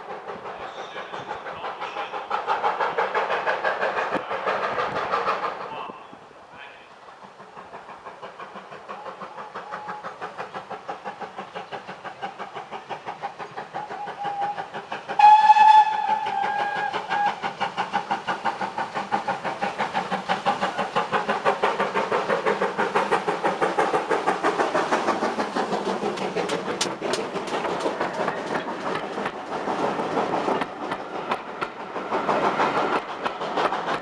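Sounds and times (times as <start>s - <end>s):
steam locomotive exhaust beats: 0.0s - 34.0s
steam locomotive whistle: 13.8s - 17.4s.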